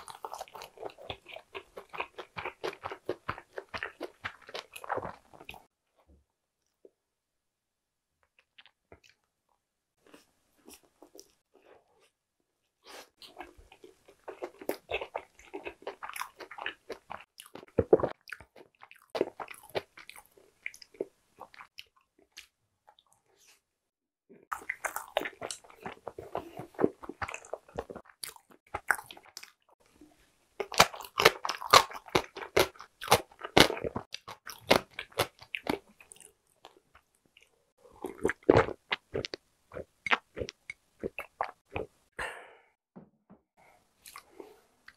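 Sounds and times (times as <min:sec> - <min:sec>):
close chewing and biting: 0:00.0 - 0:05.7, 0:12.9 - 0:23.5, 0:24.5 - 0:29.8, 0:30.6 - 0:42.0.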